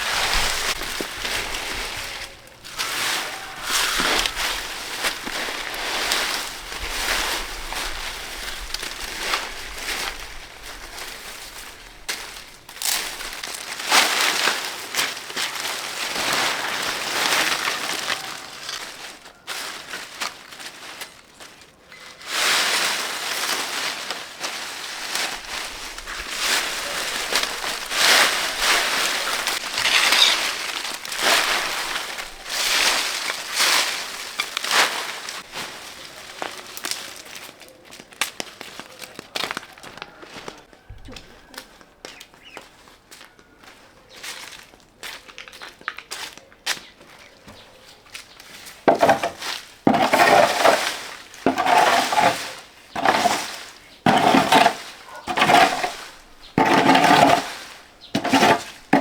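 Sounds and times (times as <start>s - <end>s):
rustling and crunching: 0.0s - 40.7s, 48.0s - 59.0s.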